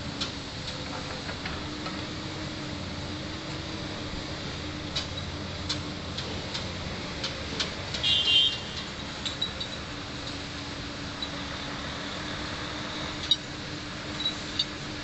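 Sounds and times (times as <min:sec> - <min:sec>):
excavator diesel engine running: 0:00.0 - 0:15.0
metallic clatter with ringing squeal: 0:05.0 - 0:05.4, 0:08.5 - 0:09.9, 0:13.1 - 0:13.5, 0:14.1 - 0:14.8
metallic clicks and clanks: 0:08.8 - 0:10.4, 0:13.2 - 0:13.5, 0:14.1 - 0:14.8.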